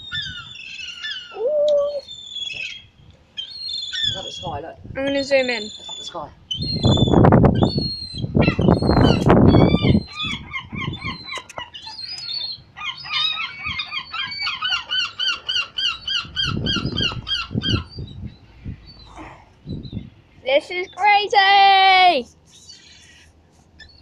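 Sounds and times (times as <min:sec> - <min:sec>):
gulls calling: 0:00.0 - 0:21.8
low rumble on microphone: 0:16.2 - 0:20.5.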